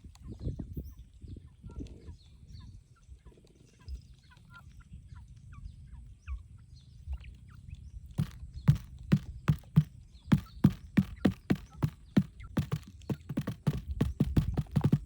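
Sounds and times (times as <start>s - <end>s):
small birds chirping: 0.0s - 15.0s
rustling and handling noise: 8.2s - 15.0s
sharp knocks: 8.2s - 15.0s.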